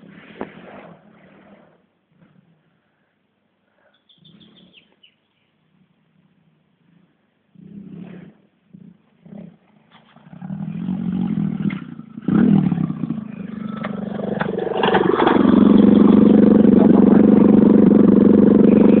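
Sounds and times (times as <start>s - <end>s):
pit bike engine running: 10.6s - 19.0s.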